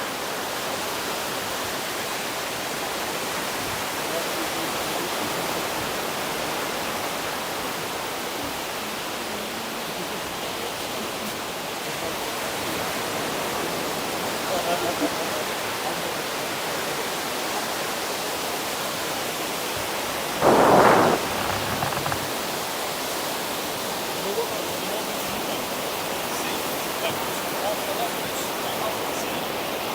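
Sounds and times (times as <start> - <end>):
sea surf washing on sand: 20.4 - 22.3.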